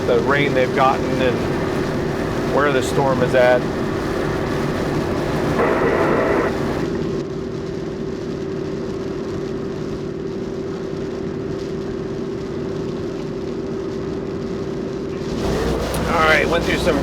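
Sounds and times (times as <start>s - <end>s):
rain on car: 0.0s - 7.0s, 15.2s - 17.0s
wind noise: 0.0s - 7.1s, 15.1s - 17.0s
road noise inside car: 0.0s - 7.2s, 15.0s - 17.0s
constant drone: 0.0s - 17.0s.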